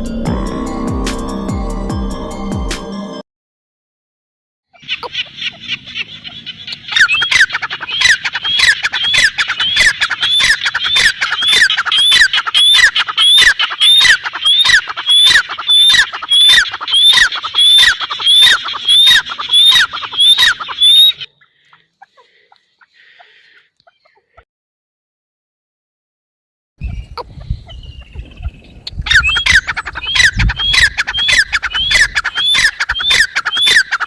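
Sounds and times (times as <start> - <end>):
bird calling: 4.7 - 24.4, 26.8 - 34.0.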